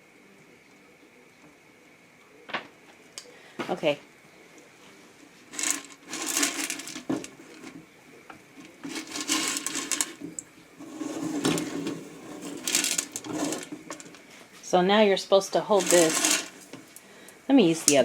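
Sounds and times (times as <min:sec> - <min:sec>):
popcorn kernels rattling in metal pan: 0:05.5 - 0:07.8, 0:08.6 - 0:14.2, 0:15.6 - 0:17.0.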